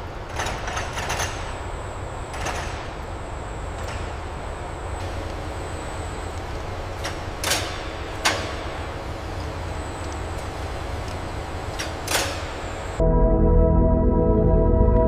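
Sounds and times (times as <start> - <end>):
machine hum and rumble: 12.9 - 15.0.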